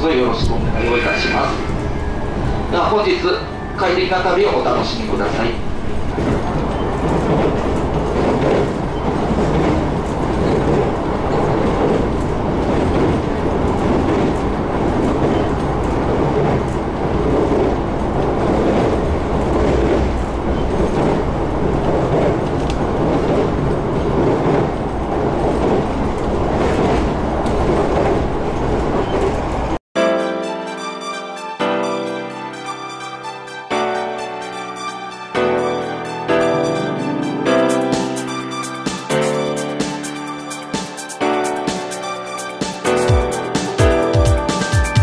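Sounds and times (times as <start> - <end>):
train wheels rumbling on rail: 0.0 - 29.8.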